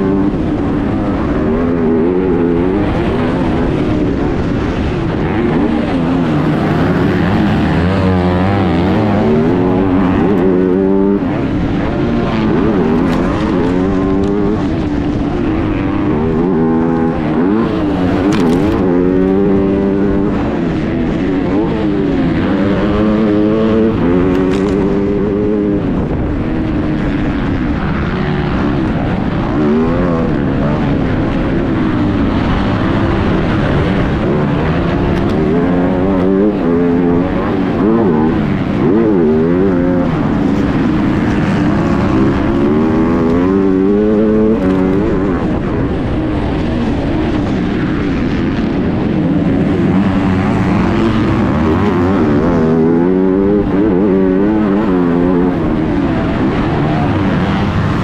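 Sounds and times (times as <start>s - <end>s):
motocross bike engine revving: 0.0s - 58.0s
wind rush on microphone: 0.0s - 58.0s.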